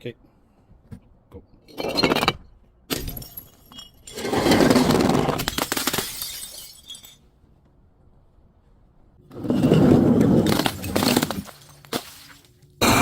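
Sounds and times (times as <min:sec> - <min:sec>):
glass breaking: 0:02.9 - 0:07.2, 0:10.4 - 0:12.5
glass shards tinkling: 0:03.0 - 0:04.5, 0:05.8 - 0:07.2.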